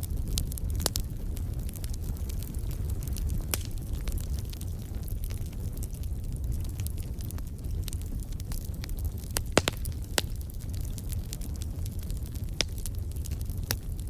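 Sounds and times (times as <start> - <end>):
fire crackling and popping: 0.0 - 14.0
low rumble of fire: 0.0 - 14.0.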